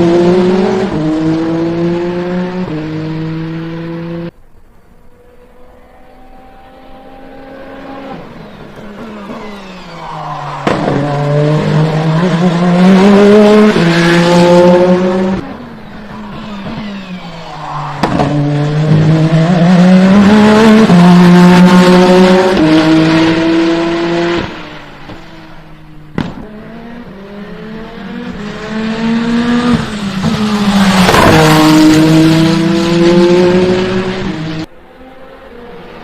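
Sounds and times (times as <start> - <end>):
race car engine accelerating: 0.0 - 4.4, 5.1 - 36.0.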